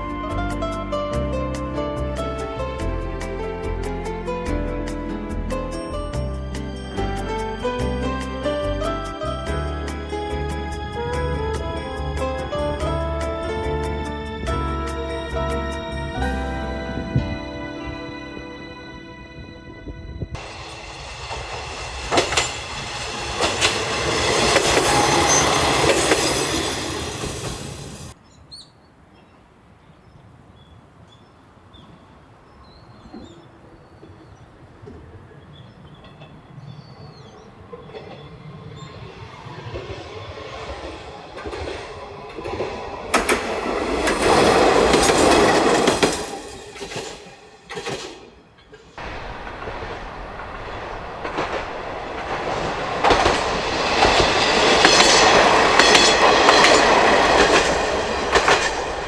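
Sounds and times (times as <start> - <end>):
diesel railcar passing: 0.0 - 28.6, 29.5 - 59.0
wheels clicking over rail joints: 20.4 - 28.2, 33.0 - 49.0, 50.4 - 59.0.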